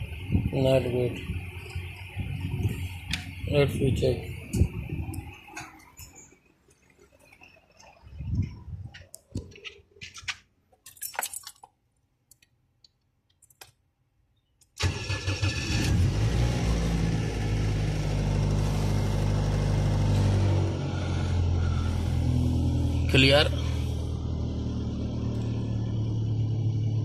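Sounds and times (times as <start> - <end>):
car engine idling: 0.0 - 6.2, 14.8 - 27.0.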